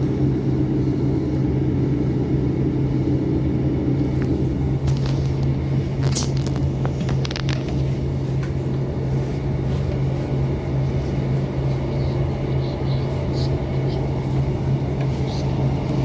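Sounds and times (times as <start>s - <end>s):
constant low hum: 0.0s - 16.0s
vehicle rumble from inside: 3.8s - 16.0s.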